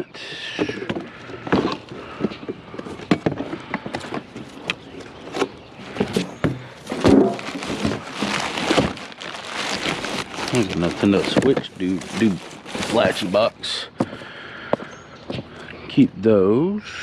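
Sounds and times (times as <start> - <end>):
household items clattering: 0.6 - 13.3.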